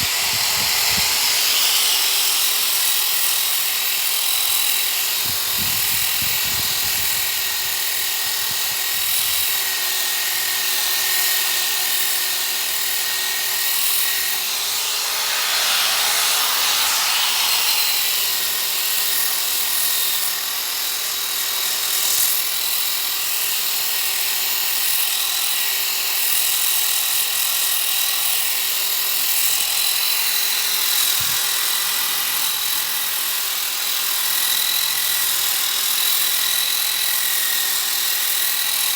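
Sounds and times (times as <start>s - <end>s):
power sander sanding wood: 0.0s - 22.4s.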